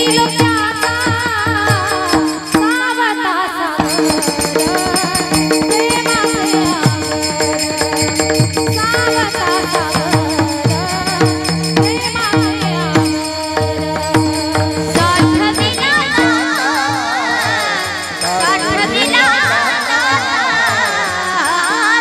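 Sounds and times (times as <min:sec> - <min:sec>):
drum strokes: 0:00.0 - 0:21.7
hand cymbals jingling: 0:03.8 - 0:22.0
wavering melody: 0:03.9 - 0:22.0.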